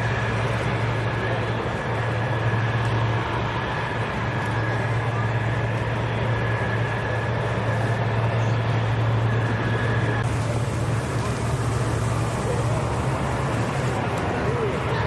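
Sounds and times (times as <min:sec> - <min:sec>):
aircraft engines low hum: 0:00.0 - 0:15.0
thin high engine whine: 0:00.0 - 0:15.0.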